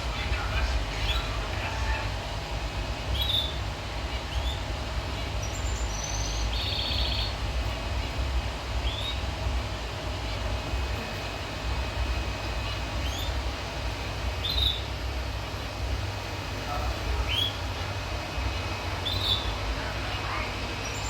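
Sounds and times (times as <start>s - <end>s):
finch chirping and trilling: 3.1s - 8.2s, 8.8s - 9.3s, 10.3s - 15.0s, 16.7s - 17.8s, 18.6s - 19.6s.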